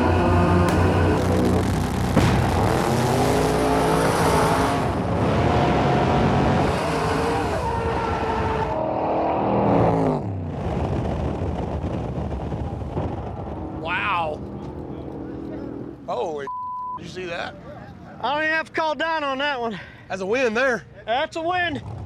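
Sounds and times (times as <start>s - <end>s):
race cars at full throttle: 0.0s - 16.1s.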